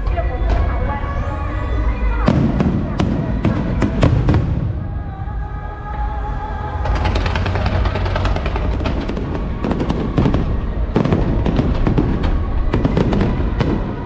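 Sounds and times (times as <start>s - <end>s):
music playing: 0.0s - 14.0s
fireworks bangs and crackles: 2.2s - 5.0s, 6.8s - 14.0s.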